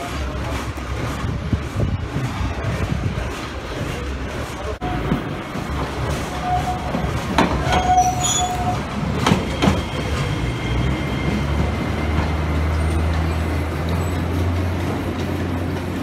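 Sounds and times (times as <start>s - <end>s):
faint wheel squeal: 6.3s - 7.0s, 7.6s - 11.7s.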